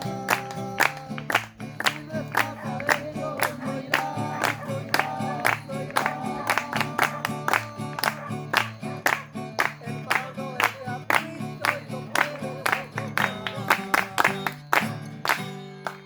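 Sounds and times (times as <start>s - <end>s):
guitar: 0.0s - 16.0s
rhythmic claps or strums: 0.0s - 16.0s
group singing worship song: 1.8s - 8.4s.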